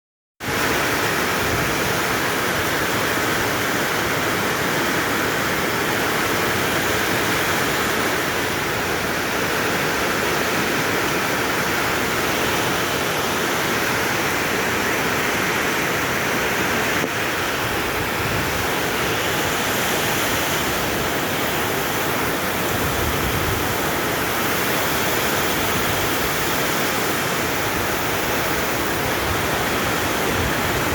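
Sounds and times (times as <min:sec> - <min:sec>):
steady rain falling: 0:00.5 - 0:30.9.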